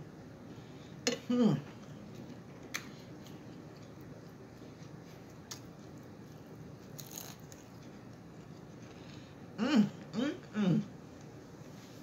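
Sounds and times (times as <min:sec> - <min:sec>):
person chewing food: 0:01.8 - 0:09.5.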